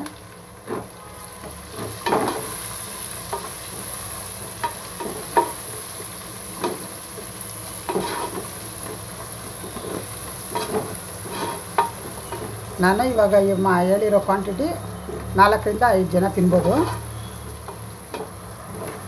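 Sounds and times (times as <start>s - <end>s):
onions sizzling in hot oil: 0.0s - 19.0s
spatula scraping and tapping pot: 7.9s - 12.6s.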